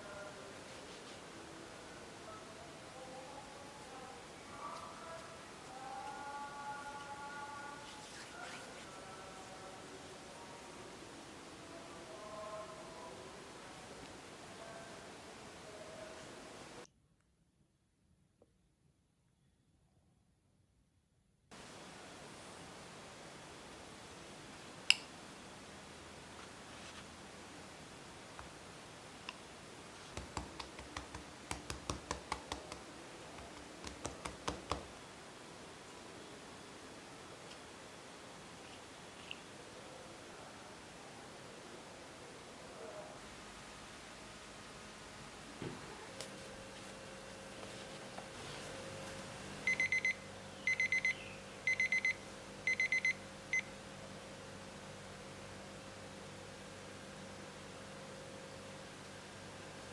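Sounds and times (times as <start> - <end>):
rapid sharp taps: 30.1 - 34.9
electronic alarm beeping: 49.6 - 53.7.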